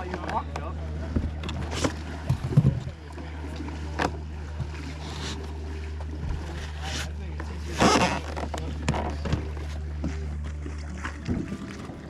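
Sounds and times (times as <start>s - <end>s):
paddle knocking on kayak hull: 0.0s - 3.0s.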